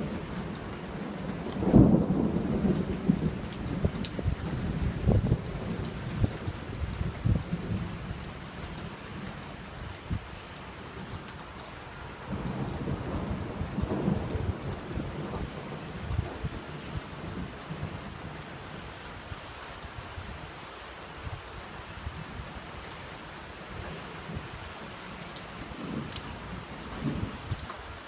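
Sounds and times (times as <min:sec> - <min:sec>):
thunder rumbling: 0:00.0 - 0:08.1, 0:12.2 - 0:18.5
steady rain: 0:00.0 - 0:28.0.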